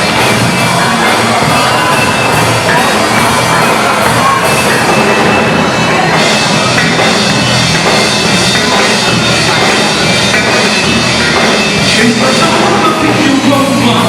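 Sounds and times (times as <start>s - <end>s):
loud rock music: 0.0s - 14.0s.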